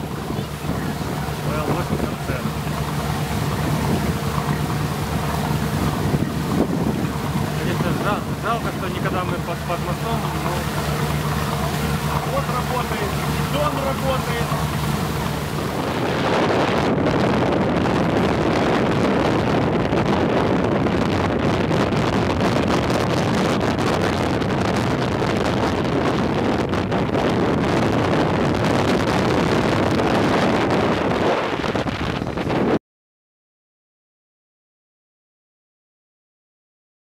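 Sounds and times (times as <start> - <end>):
water running: 0.0 - 16.3
boat motor: 0.0 - 32.8
wind buffeting microphone: 0.0 - 32.8.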